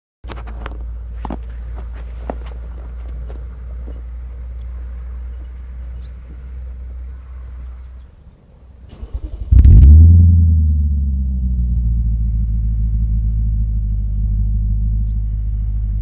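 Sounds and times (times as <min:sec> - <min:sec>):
car engine starting and idling: 0:00.3 - 0:16.0
steady low rumble: 0:00.3 - 0:16.0.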